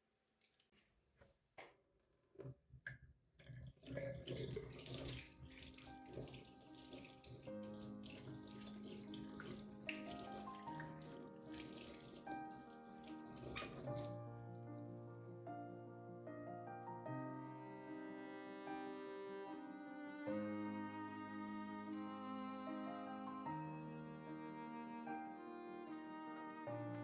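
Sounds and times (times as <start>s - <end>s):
tap water running into sink: 3.4s - 14.2s
soft background music: 4.4s - 27.0s.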